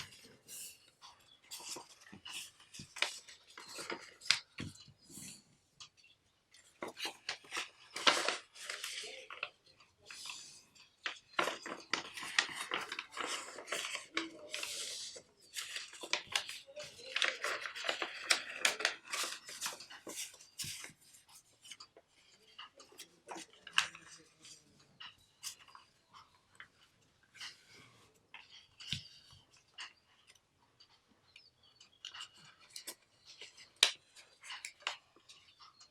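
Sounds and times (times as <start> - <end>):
paper being folded and creased: 1.4 - 5.0, 6.6 - 24.7.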